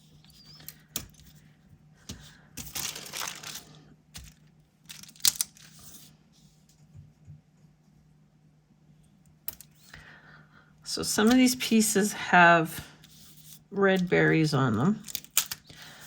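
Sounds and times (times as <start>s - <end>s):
paper rustling: 2.1s - 6.1s.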